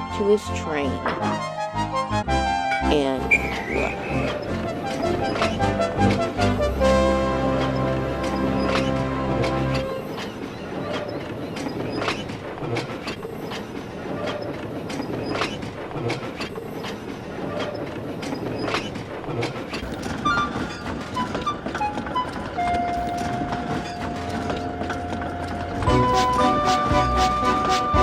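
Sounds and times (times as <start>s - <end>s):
short notes: 2.8s - 8.4s
steady high tone: 3.0s - 4.6s
train wheels clickety-clack: 3.3s - 28.0s.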